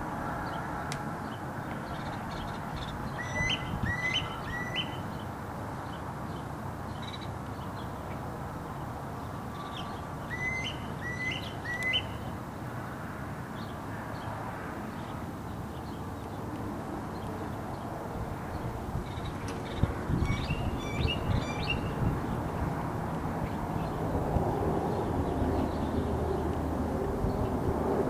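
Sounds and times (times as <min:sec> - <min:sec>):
bird whistling: 0:03.2 - 0:05.0, 0:10.3 - 0:12.2.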